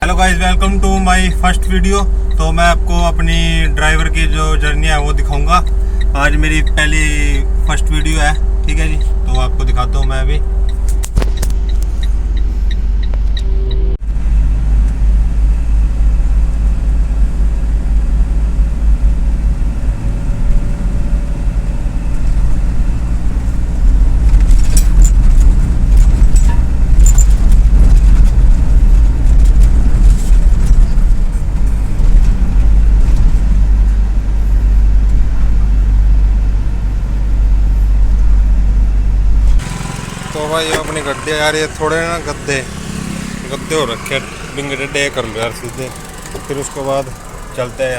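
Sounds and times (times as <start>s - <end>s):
truck engine idling: 0.0s - 24.3s, 24.9s - 47.9s
sharp clicks and knocks: 10.7s - 13.8s.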